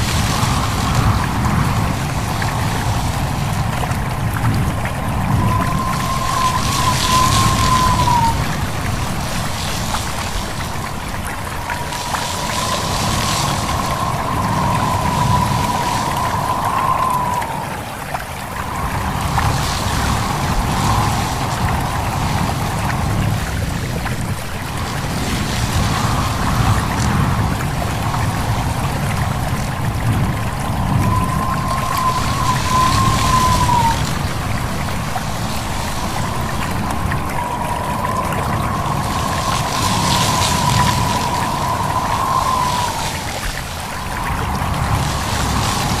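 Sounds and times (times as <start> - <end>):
rustling leaves: 0.0 - 46.0
wind: 0.0 - 46.0
faint thin whistle-like tone: 4.7 - 10.0, 11.1 - 22.8, 30.4 - 45.9.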